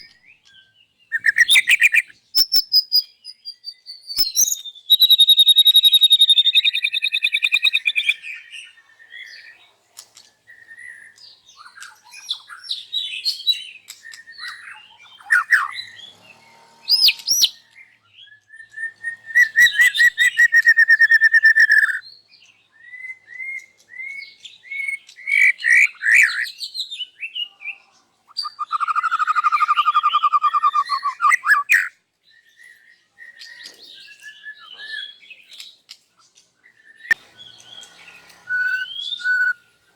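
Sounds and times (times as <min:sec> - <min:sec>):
songbird singing varied phrases: 0:00.0 - 0:09.8, 0:10.5 - 0:16.3, 0:16.9 - 0:35.7.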